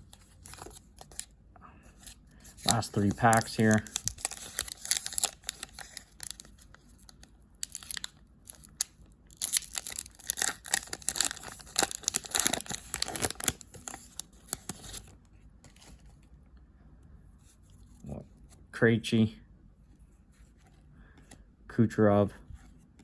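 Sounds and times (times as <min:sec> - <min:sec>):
card pack wrapper crinkling: 0:00.0 - 0:01.3, 0:02.0 - 0:16.0.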